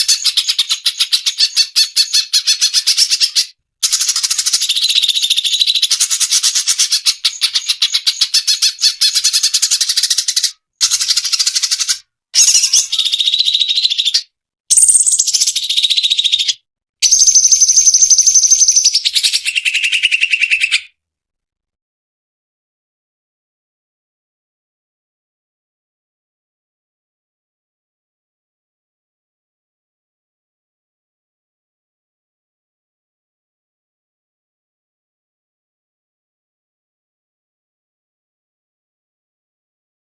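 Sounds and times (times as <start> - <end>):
bird chattering and whistling: 0.0 - 20.9.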